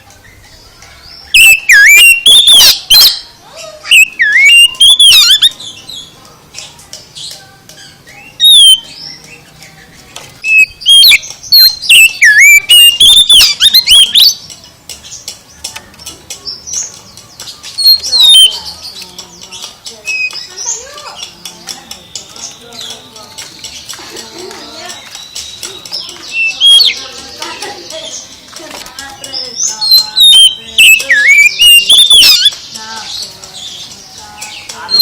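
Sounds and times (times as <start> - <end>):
bird singing whistled phrases: 1.1 - 6.1, 7.9 - 9.8, 10.4 - 14.4, 17.7 - 23.2, 24.8 - 27.2, 29.4 - 33.2, 34.4 - 35.0.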